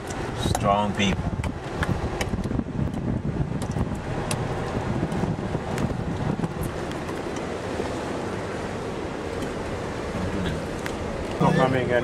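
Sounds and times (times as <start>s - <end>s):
wind noise on microphone: 0.0s - 8.0s.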